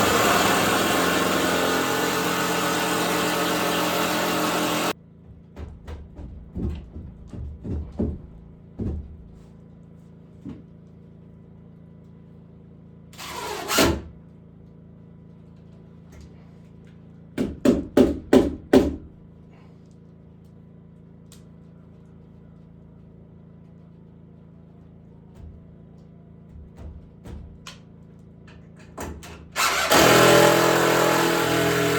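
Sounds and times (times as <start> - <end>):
woodworking knocks: 5.4 - 9.3.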